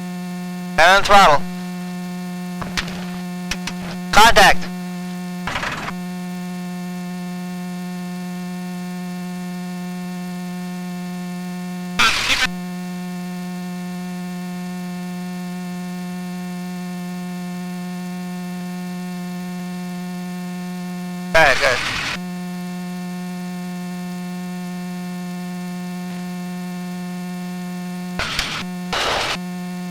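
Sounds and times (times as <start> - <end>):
electrical hum on intercom: 0.7 - 1.9, 2.6 - 4.8, 5.5 - 6.0, 12.0 - 12.6, 21.4 - 22.2, 28.2 - 29.4
static crackle: 2.6 - 4.7, 5.5 - 6.0, 12.0 - 12.6, 21.4 - 22.2, 28.2 - 29.4.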